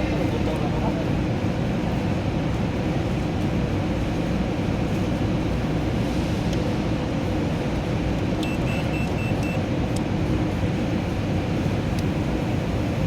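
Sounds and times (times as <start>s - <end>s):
low mechanical rumble: 0.0s - 13.0s
faint pulsing high beep: 8.4s - 9.6s.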